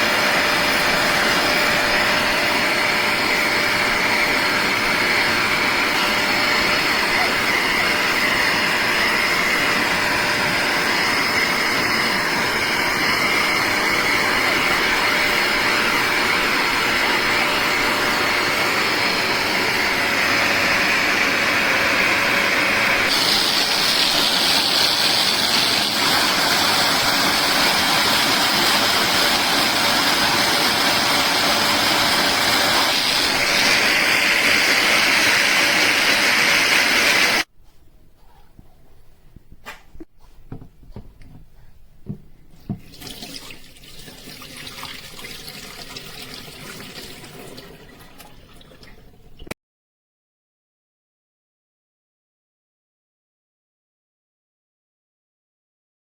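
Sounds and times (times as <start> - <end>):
carpet cleaner suction whine: 0.0 - 37.5.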